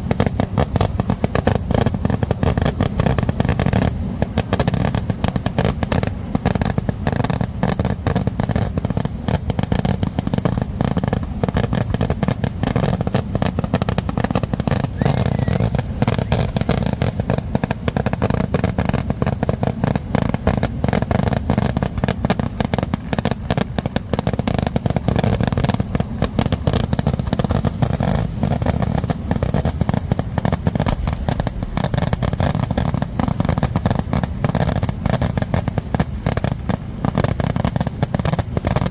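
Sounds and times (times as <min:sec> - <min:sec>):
fireworks bangs and cracks: 0:00.0 - 0:38.9.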